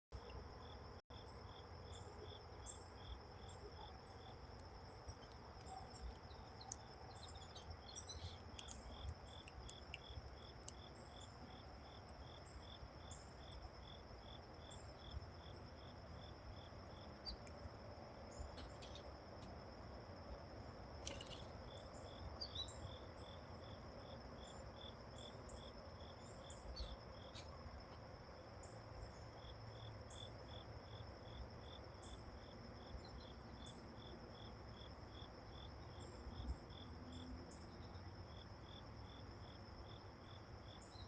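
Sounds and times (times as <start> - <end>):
insect chirping: 0.1 - 41.0
cricket trilling: 0.2 - 41.0.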